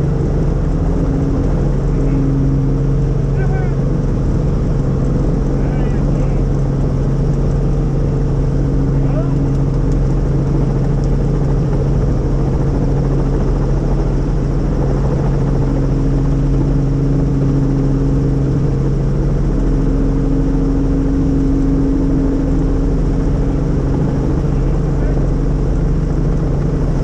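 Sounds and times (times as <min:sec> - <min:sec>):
helicopter engine and rotor drone: 0:00.0 - 0:27.0.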